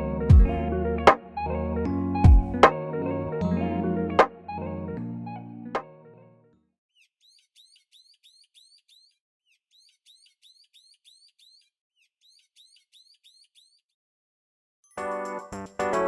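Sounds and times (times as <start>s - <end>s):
faint bird chirping: 7.0s - 13.9s.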